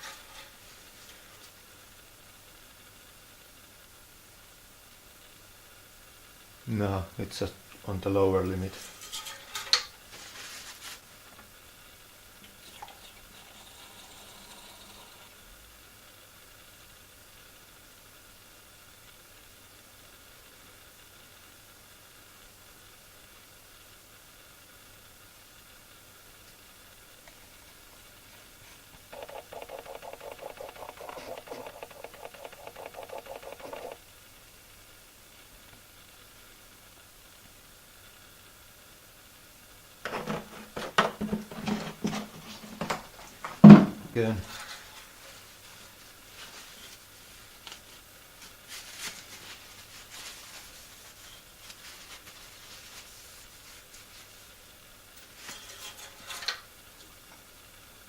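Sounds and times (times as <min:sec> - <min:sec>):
faint handling rubs and scrapes: 0:10.1 - 0:11.1, 0:27.6 - 0:34.0, 0:44.4 - 0:54.5, 0:55.2 - 0:56.6.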